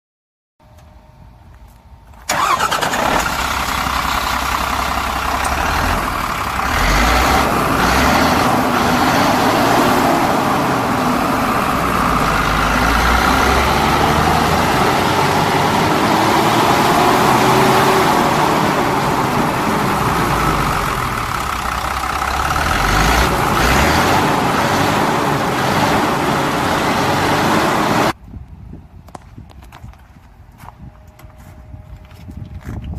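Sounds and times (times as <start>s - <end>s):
diesel engine running: 2.2s - 28.2s.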